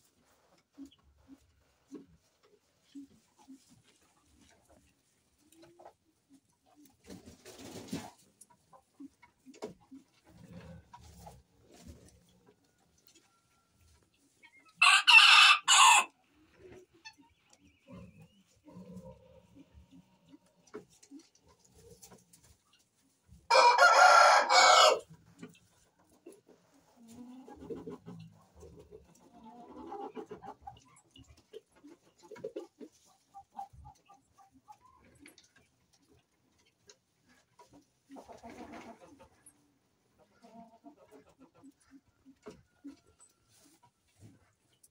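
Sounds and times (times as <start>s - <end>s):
poultry clucking: 0.0s - 44.9s
rooster crowing: 14.8s - 16.1s, 23.5s - 25.0s.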